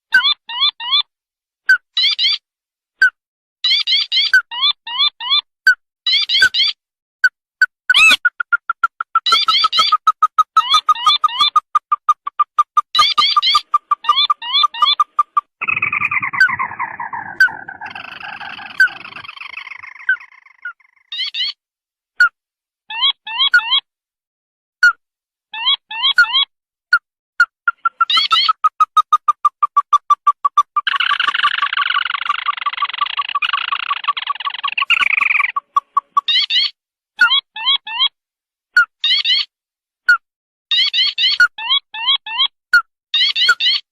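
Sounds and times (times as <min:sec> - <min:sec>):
bird rattling trill call: 0:07.9 - 0:21.4, 0:27.7 - 0:36.7
higher bird trill: 0:07.9 - 0:21.6, 0:30.4 - 0:36.7.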